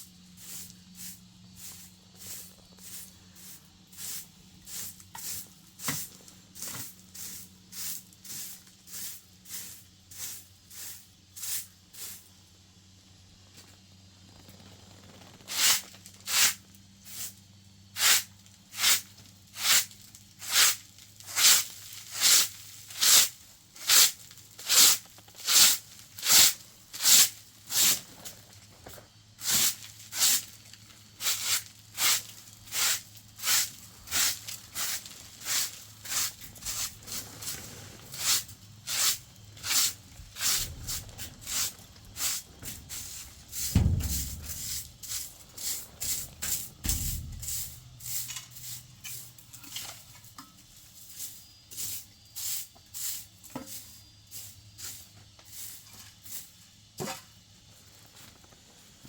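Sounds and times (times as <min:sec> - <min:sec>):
rhythmic scraping strokes: 0:38.4 - 0:49.2.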